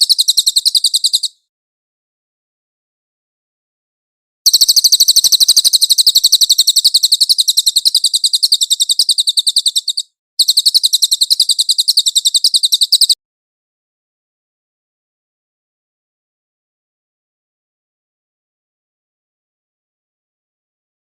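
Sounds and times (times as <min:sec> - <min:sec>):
songbird chattering trill: 0:00.0 - 0:01.4, 0:04.5 - 0:13.2.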